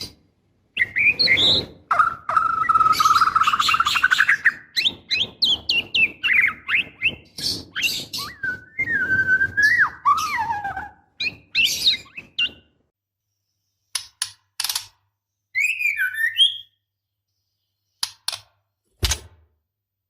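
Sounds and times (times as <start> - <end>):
bird chirping and whistling: 0.8 - 12.8, 15.5 - 16.8.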